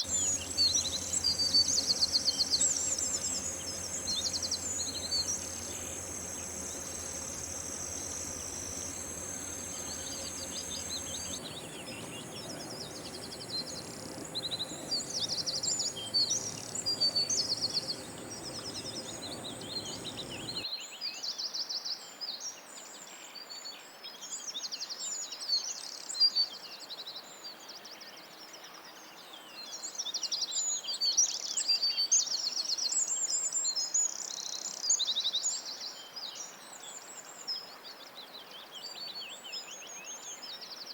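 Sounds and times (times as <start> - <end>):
steady high buzz: 0.0 - 20.6
wild birds chirping and trilling: 0.0 - 20.6.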